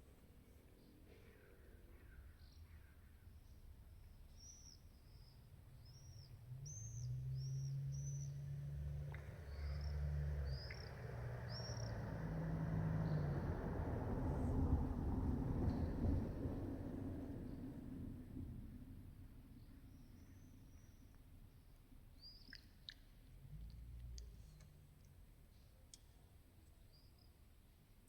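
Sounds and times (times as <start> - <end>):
small bird chirping: 4.3 - 8.5, 9.1 - 12.0.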